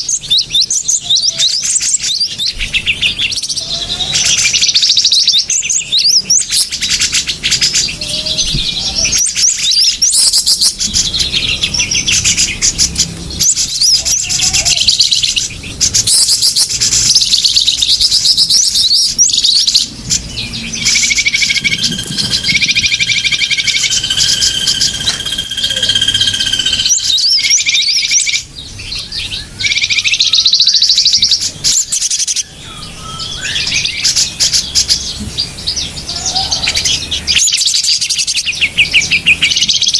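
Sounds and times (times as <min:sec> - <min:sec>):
small birds chirping: 0:00.0 - 0:39.9
steady held whistle: 0:20.8 - 0:28.0.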